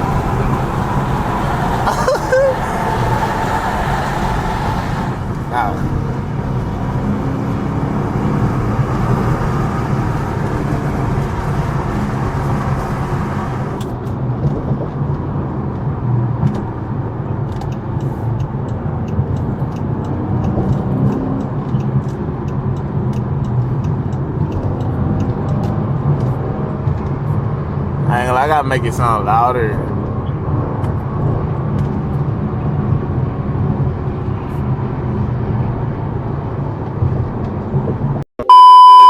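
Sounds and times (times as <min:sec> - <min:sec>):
car exhaust drone: 0:00.0 - 0:28.1.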